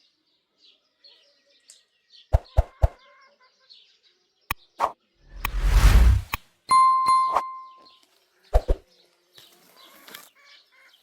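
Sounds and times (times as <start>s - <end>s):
loud rushing with low rumble: 5.3s - 6.3s.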